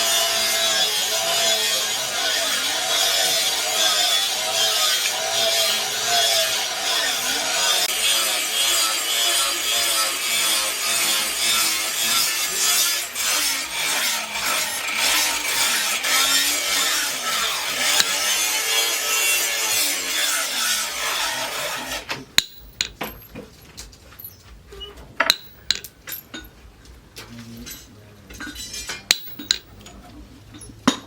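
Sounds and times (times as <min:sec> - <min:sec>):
abrasive scraping on a knife: 0:08.6 - 0:18.4.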